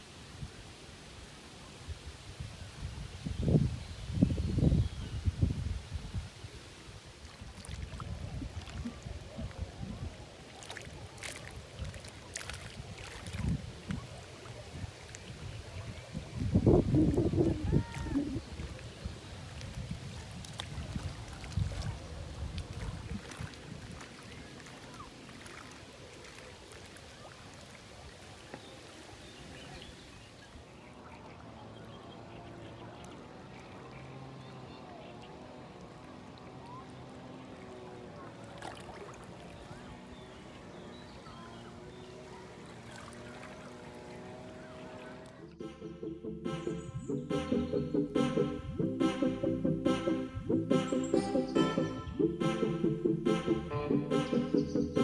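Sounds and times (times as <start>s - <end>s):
wind rumbling on microphone: 1.8s - 45.4s
water lapping: 5.4s - 45.6s.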